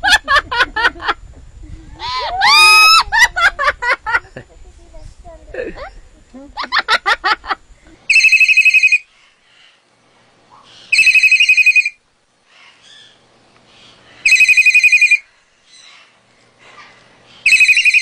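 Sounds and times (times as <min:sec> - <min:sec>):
telephone ringing: 0:08.1 - 0:09.0, 0:11.0 - 0:12.0, 0:14.3 - 0:15.2, 0:17.5 - 0:18.0.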